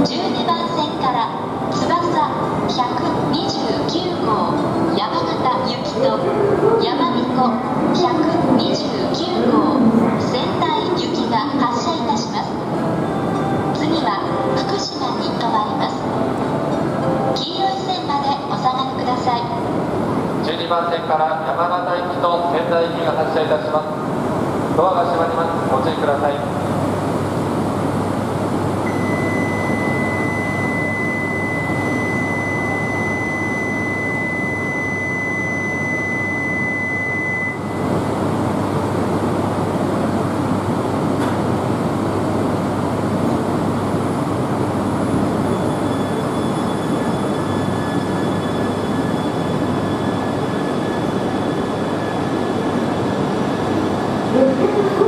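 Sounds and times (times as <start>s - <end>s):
steady high beep: 28.8s - 37.9s
faint high whines: 28.8s - 38.2s, 44.7s - 55.0s
train rushing noise: 37.7s - 55.0s.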